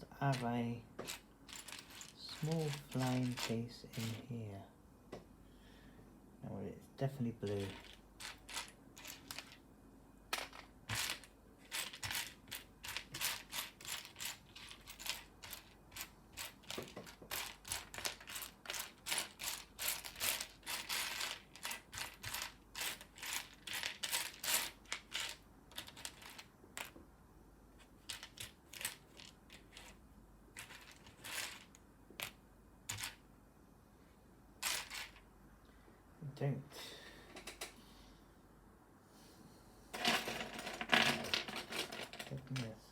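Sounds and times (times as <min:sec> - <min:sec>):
plastic pieces clicking and rattling: 0:01.0 - 0:04.3, 0:07.5 - 0:09.6, 0:10.3 - 0:27.0, 0:27.8 - 0:30.0, 0:30.6 - 0:33.2, 0:34.6 - 0:35.2, 0:40.0 - 0:42.7.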